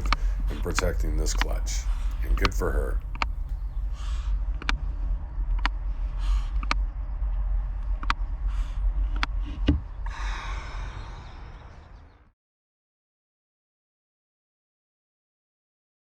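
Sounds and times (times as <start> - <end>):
owl hissing: 0.0 - 4.5, 6.0 - 6.7, 8.4 - 12.0
owl bill clicks: 0.0 - 4.8
steady low rumble: 0.0 - 12.3.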